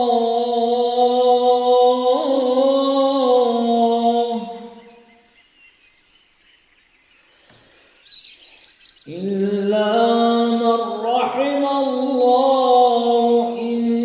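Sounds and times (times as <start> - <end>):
man reciting melodically: 0.0 - 4.8, 9.1 - 14.0
faint high chirping: 4.4 - 10.1.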